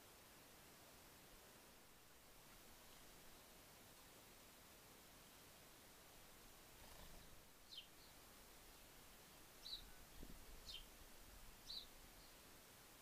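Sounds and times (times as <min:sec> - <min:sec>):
faint bird calls: 0:06.8 - 0:10.9.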